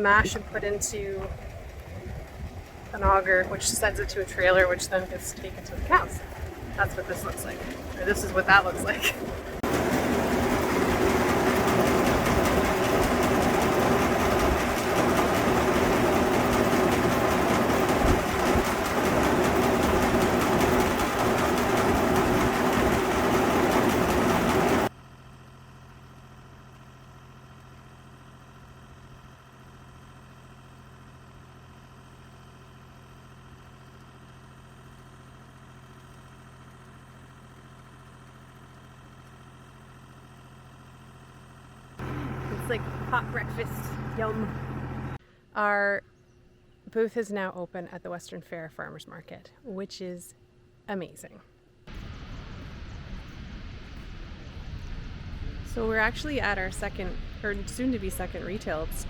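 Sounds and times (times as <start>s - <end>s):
grain auger running: 0.0s - 24.9s, 28.4s - 45.2s
faint hum: 49.3s - 59.0s.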